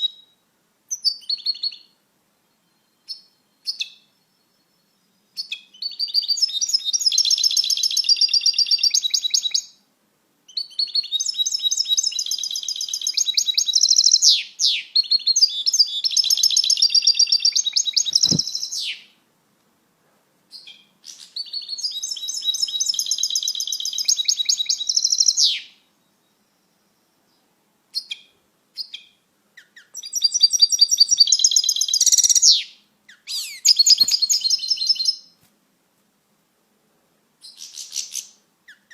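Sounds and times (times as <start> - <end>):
goldfinch twittering song: 2.6 - 9.8, 10.5 - 19.1, 20.5 - 25.8, 27.9 - 35.4.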